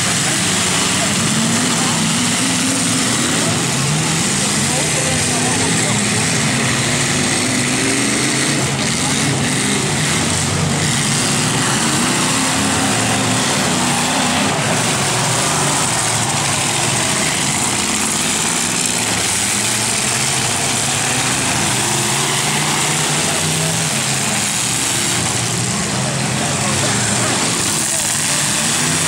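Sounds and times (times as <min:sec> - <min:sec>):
truck engines running hard: 0:00.0 - 0:29.0.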